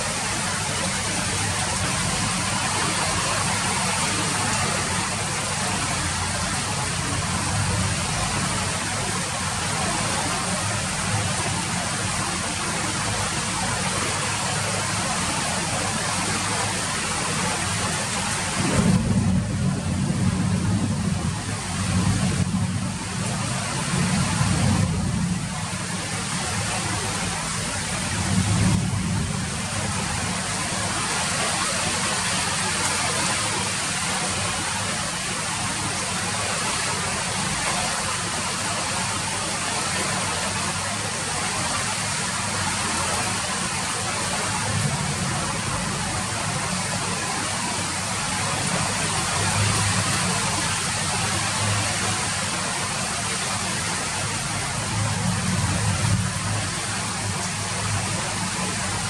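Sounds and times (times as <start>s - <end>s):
rain falling: 0.0s - 59.0s
low rumble: 18.2s - 25.8s.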